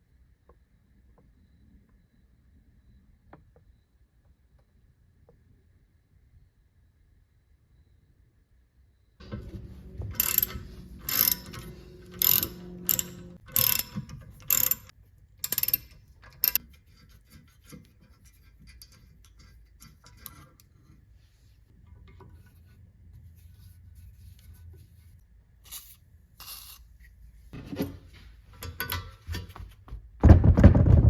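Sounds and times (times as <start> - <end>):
motor hum: 9.2 - 14.9
mechanical ratcheting clicks: 10.2 - 16.6.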